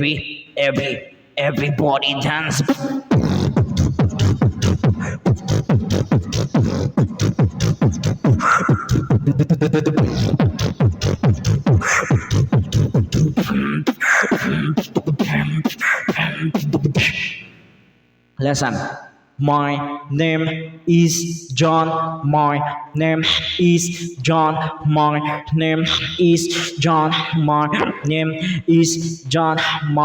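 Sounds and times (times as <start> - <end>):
person beatboxing: 1.5 - 17.5, 22.5 - 30.0.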